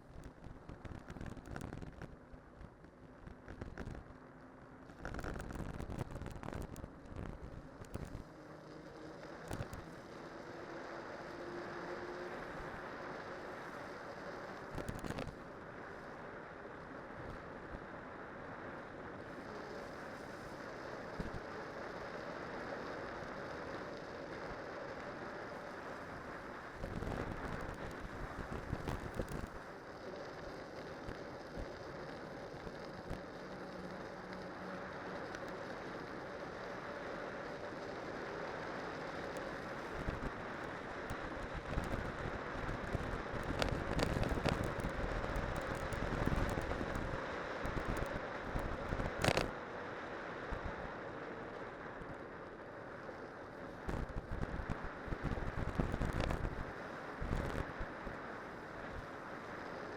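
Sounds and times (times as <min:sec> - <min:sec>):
wind and tyre noise: 0:00.0 - 0:59.9.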